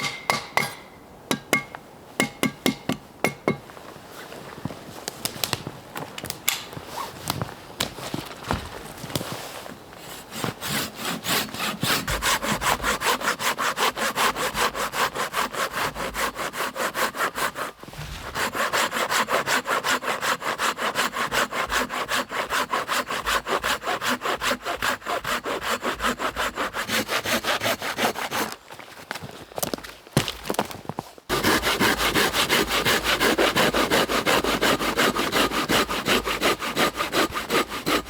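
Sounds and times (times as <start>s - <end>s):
hand saw cutting wood: 10.0s - 28.6s, 31.3s - 38.0s.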